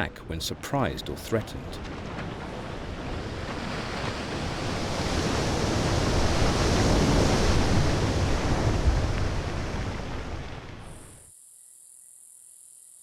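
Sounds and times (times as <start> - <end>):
rushing surf-like water: 0.0 - 11.3.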